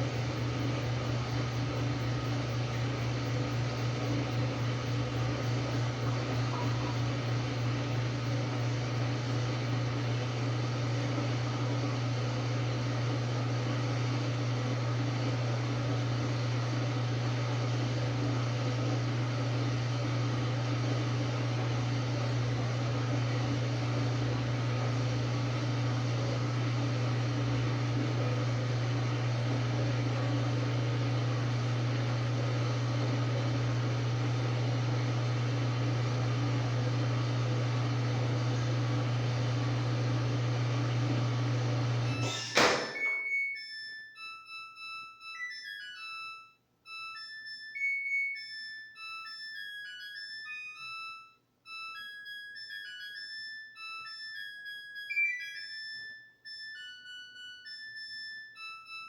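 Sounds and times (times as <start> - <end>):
washing machine motor humming: 0.0 - 43.4.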